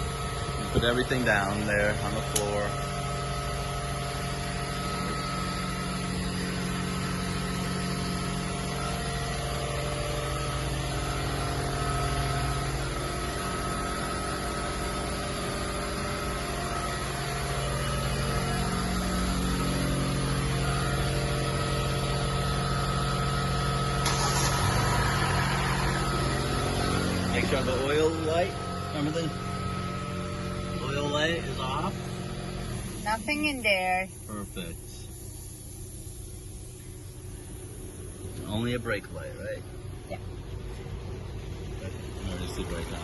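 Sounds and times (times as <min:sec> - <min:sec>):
car engine idling: 0:00.0 - 0:43.0
brief rushing noise: 0:24.0 - 0:27.3.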